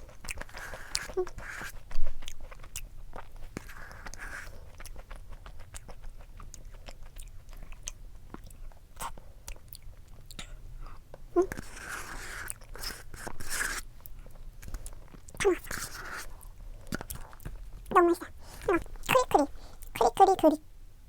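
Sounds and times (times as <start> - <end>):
person chewing: 0.0 - 20.2
wet mouth clicks: 14.6 - 20.0.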